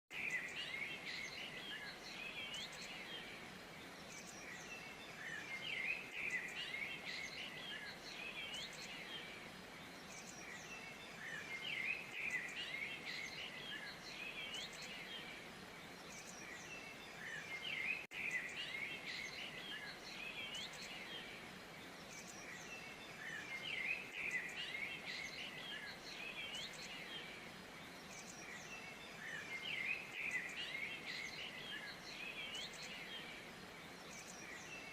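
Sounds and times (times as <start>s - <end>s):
birds chirping and singing: 0.1s - 34.9s
faint steady hiss: 0.1s - 34.9s.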